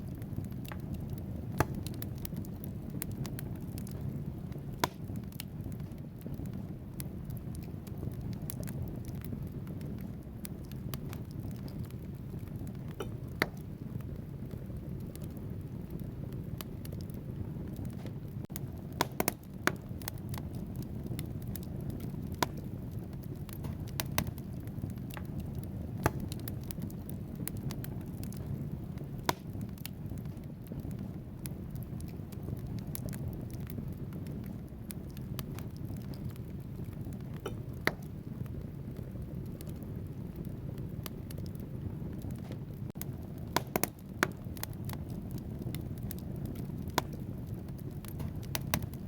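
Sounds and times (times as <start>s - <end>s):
fire crackling and popping: 0.0s - 49.0s
rumble of flames: 0.0s - 49.0s.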